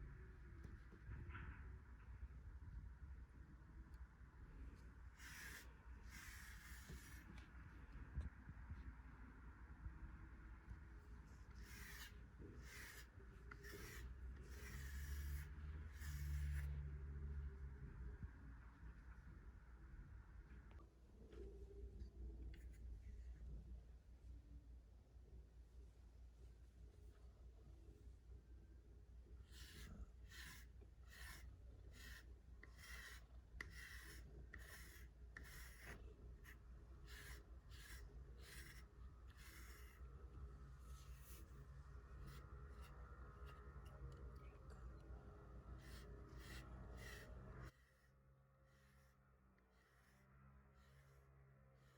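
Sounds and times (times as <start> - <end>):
brush scratching through cat fur: 5.2 - 7.6, 11.3 - 16.9, 29.5 - 44.5, 45.6 - 51.9.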